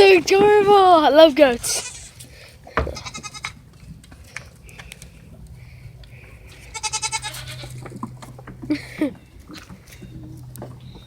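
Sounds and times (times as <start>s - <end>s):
goat bleating: 1.6s - 2.2s, 2.8s - 3.6s, 6.6s - 7.9s.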